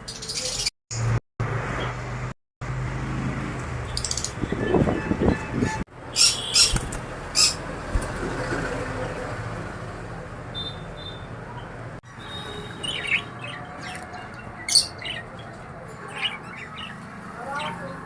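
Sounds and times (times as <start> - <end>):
pet birds chirping and squawking: 0.0 - 0.7, 3.8 - 8.1, 12.4 - 17.9.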